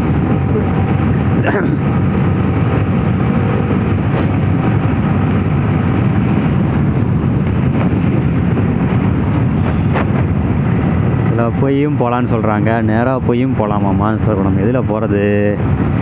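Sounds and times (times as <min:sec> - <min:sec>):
motorcycle engine running: 0:00.0 - 0:11.6
wind and road noise: 0:00.0 - 0:16.0.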